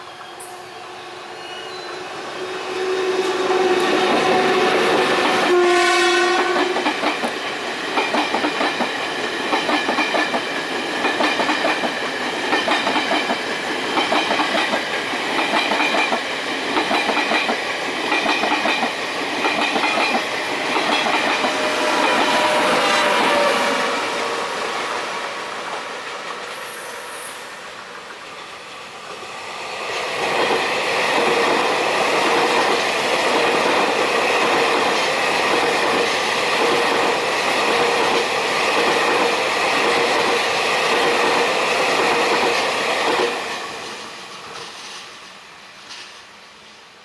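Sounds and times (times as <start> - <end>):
high train whine: 0.0 - 47.0
train wheels clattering: 3.2 - 24.2, 30.2 - 45.2.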